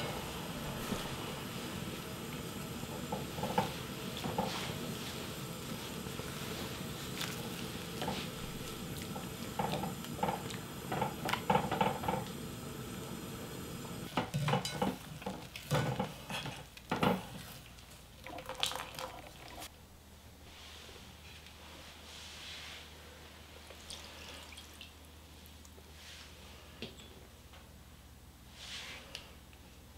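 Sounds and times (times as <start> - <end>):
simmering hiss: 0.0 - 14.2.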